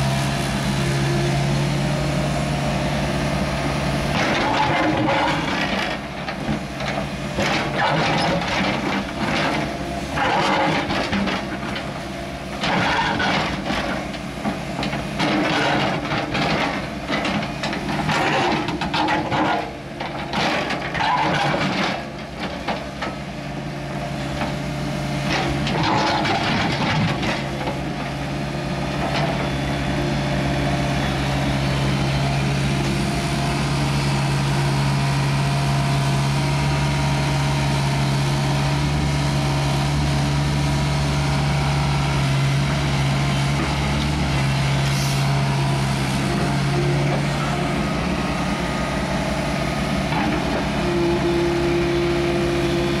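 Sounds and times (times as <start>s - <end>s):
digging machine engine running: 0.0s - 53.0s
metal clanking and scraping: 4.1s - 11.9s, 12.6s - 22.9s, 25.3s - 27.8s.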